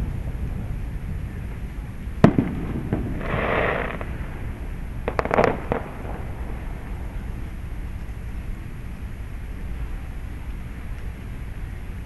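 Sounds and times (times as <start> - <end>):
firework hissing crackle: 0.0 - 12.0
steady low rumble: 0.0 - 12.0
distant firework bangs and pops: 2.2 - 4.4, 5.0 - 6.9
firework cracks: 2.2 - 4.4, 5.0 - 7.1.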